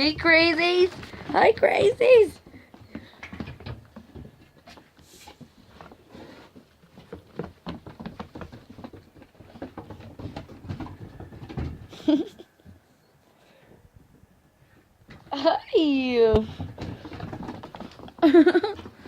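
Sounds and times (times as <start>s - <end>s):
puppies moving about: 0.0s - 12.8s, 16.4s - 19.0s.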